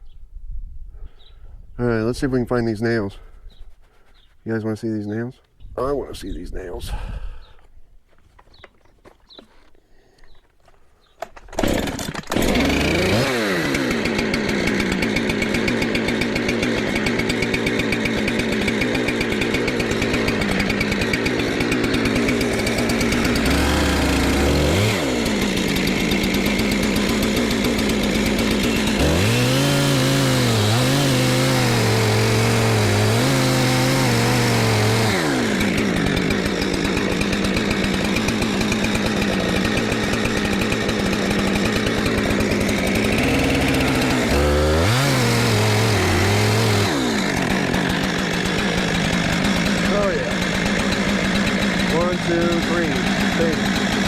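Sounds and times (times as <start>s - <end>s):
gasoline engine starting and running: 11.2s - 54.0s.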